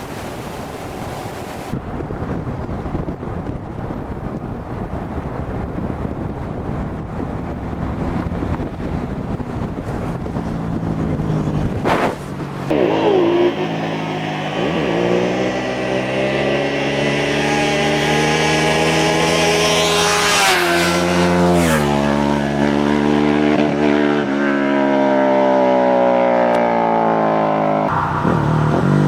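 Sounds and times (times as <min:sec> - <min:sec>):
wind noise: 0:00.0 - 0:24.4
motorcycle engine rumble: 0:00.0 - 0:29.0
sport bike engine revving: 0:10.4 - 0:29.0.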